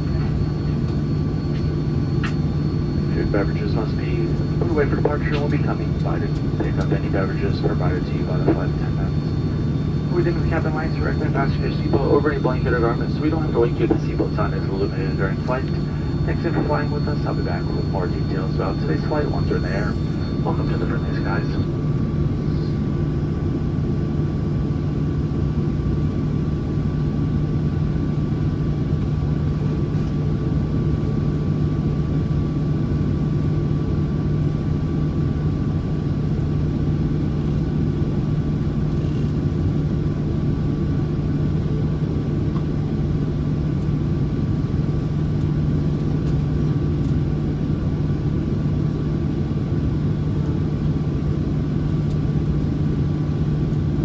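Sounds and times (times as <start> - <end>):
faint thin whine: 0.0 - 21.8
airplane cabin drone: 0.0 - 54.0.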